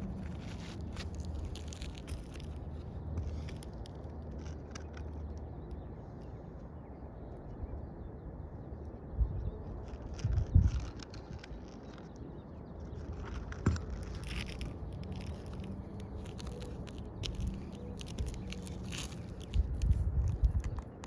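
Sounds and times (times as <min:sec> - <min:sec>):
steady low rumble: 0:00.0 - 0:21.0
roof shingles scraping and crackling: 0:13.2 - 0:19.6.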